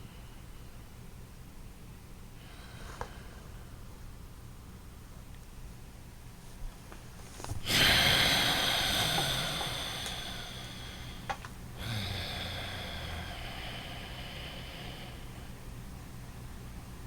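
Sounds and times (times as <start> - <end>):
loud breathing through the nose: 2.4 - 3.9, 7.6 - 15.8.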